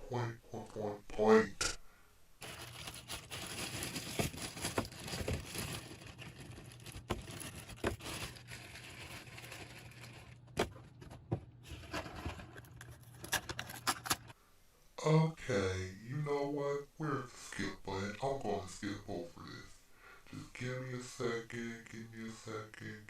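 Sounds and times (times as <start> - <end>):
food wrapper rustling and crinkling: 2.4 - 14.3.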